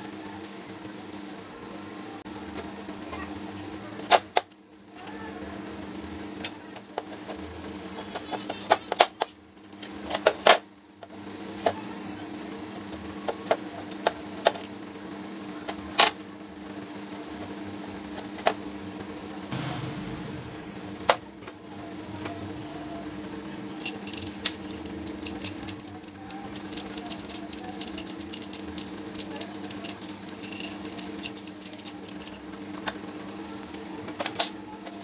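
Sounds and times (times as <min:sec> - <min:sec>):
steady low hum: 0:00.0 - 0:35.0
metal tools clicking and knocking: 0:23.7 - 0:33.0.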